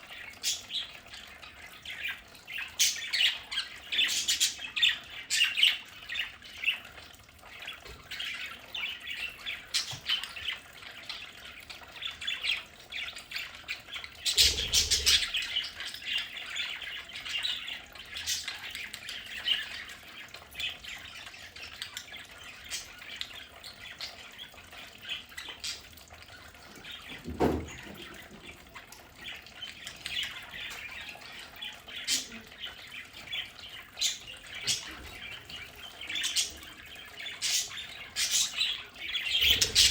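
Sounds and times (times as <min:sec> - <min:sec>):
budgerigars chirping and squawking: 0:00.1 - 0:39.9.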